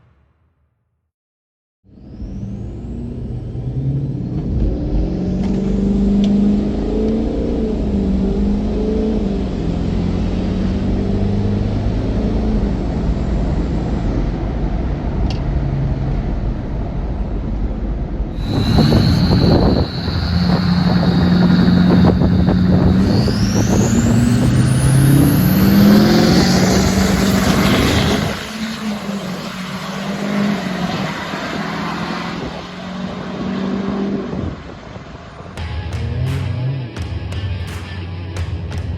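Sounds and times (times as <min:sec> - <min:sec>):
truck engine accelerating: 0:01.9 - 0:38.9.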